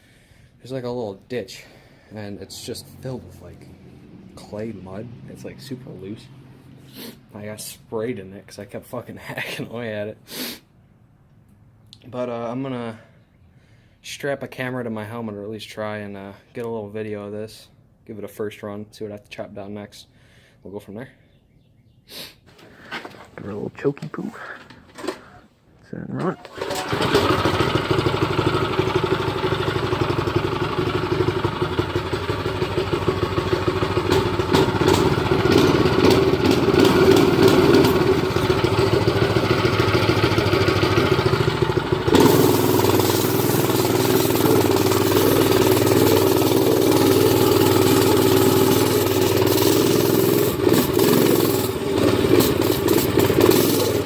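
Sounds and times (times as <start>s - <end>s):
minibike engine running: 26.5s - 54.0s.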